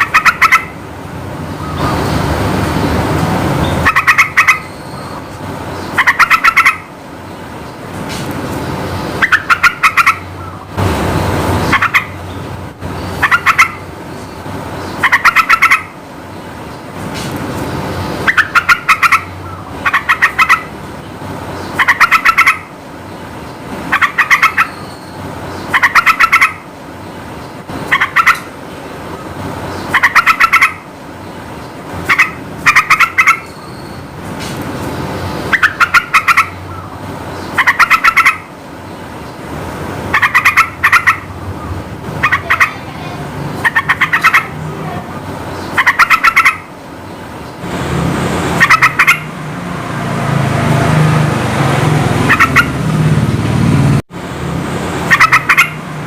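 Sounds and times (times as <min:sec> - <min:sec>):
bulbul singing bubbling phrases: 0:42.2 - 0:46.5.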